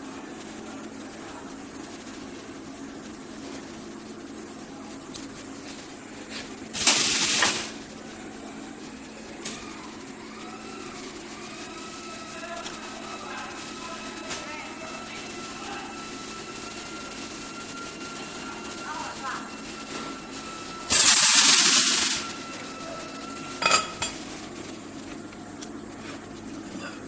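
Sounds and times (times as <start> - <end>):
loud hiss: 6.7 - 7.8, 16.2 - 24.6.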